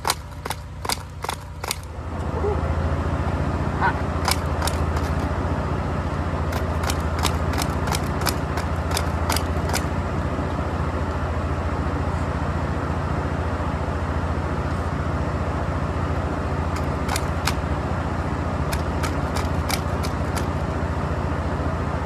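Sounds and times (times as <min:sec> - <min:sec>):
starter cranking small engine: 0:00.0 - 0:02.0, 0:03.4 - 0:10.1, 0:16.6 - 0:20.8.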